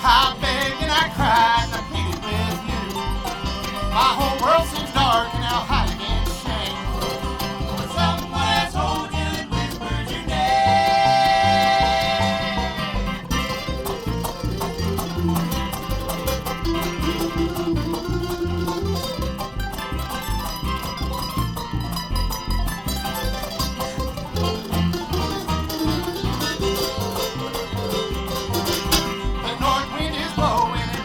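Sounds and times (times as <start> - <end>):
banjo: 0.0 - 31.0
bass beat: 0.0 - 31.0
picked acoustic guitar: 0.0 - 31.0.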